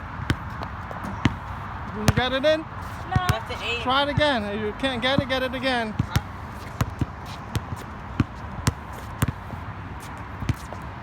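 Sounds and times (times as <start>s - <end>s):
ball bouncing on hard floor: 2.1s - 2.3s.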